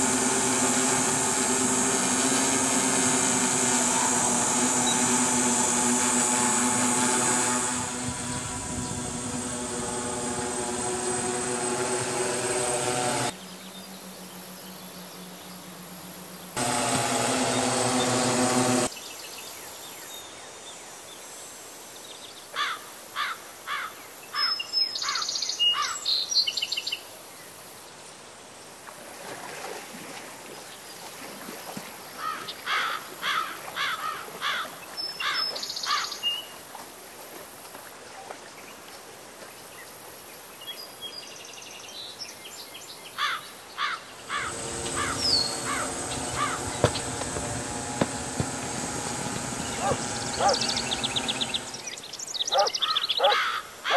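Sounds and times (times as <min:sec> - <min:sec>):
drone propellers humming: 0:00.0 - 0:18.9, 0:44.2 - 0:52.7
outdoor ambience: 0:00.0 - 0:19.0, 0:43.0 - 0:53.9
bird chirps: 0:44.3 - 0:47.2, 0:49.0 - 0:53.4.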